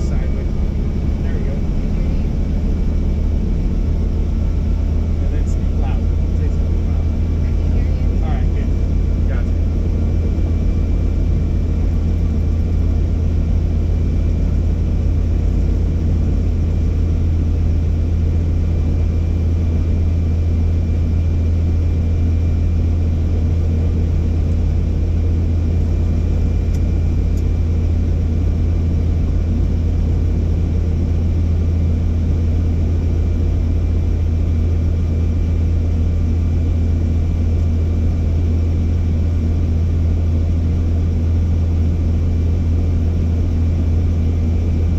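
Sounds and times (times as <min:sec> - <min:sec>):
helicopter rotor and engine drone: 0:00.0 - 0:44.9.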